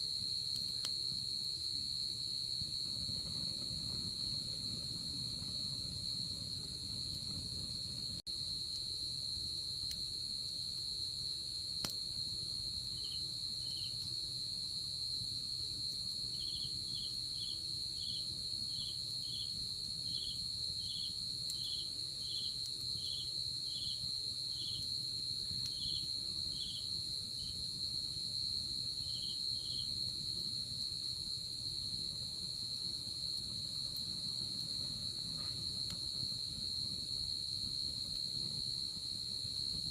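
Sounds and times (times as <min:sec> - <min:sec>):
crickets trilling: 0:00.0 - 0:39.9
insect lower chirps: 0:12.9 - 0:14.1.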